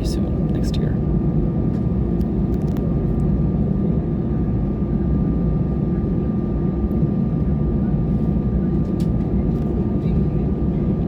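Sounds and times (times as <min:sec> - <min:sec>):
aircraft cabin engine rumble: 0:00.0 - 0:11.0.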